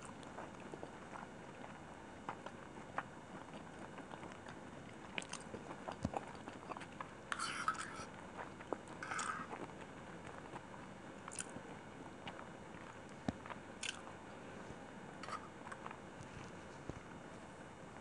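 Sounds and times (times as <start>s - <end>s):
chewing food: 0.0s - 14.4s, 15.2s - 17.2s
wet mouth and lip smacks: 13.8s - 14.0s.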